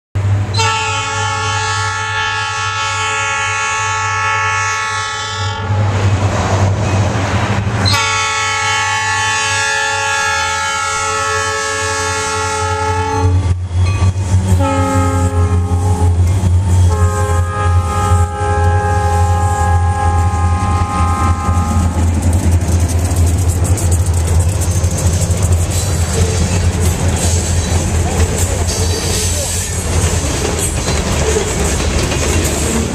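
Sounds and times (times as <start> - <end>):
freight train rumbling: 0.2 - 32.9
locomotive air horn: 0.4 - 5.9, 7.8 - 13.6, 14.4 - 22.2.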